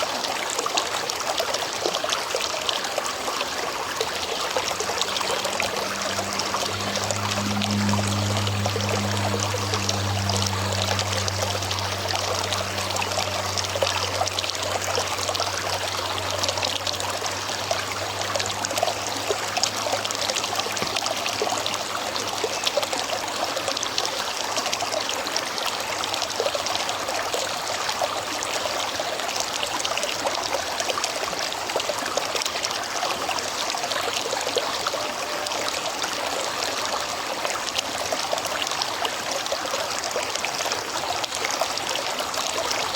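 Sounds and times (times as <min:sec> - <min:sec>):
river water rushing over rocks: 0:00.0 - 0:42.9
low hum: 0:03.3 - 0:23.7.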